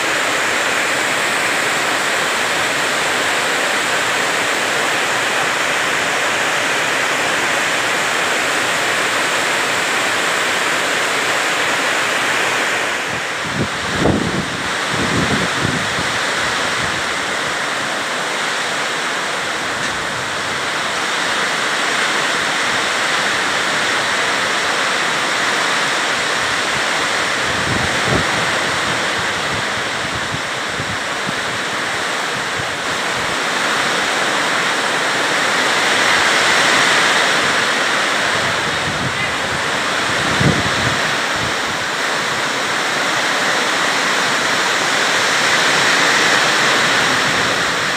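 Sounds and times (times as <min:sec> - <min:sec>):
heavy rain pouring: 0:00.0 - 0:47.9
wind gusts hitting microphone: 0:12.0 - 0:18.5, 0:26.3 - 0:47.9.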